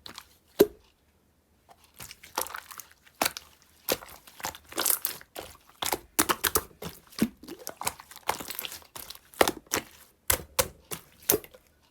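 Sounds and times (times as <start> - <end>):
slime clicking and popping: 2.0 - 11.6.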